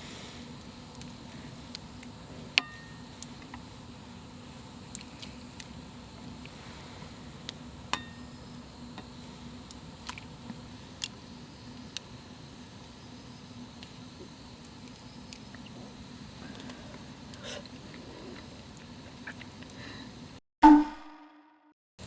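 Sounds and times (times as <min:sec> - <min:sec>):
small ticks: 0:00.6 - 0:03.7, 0:04.5 - 0:06.6, 0:08.9 - 0:12.1, 0:13.7 - 0:15.7.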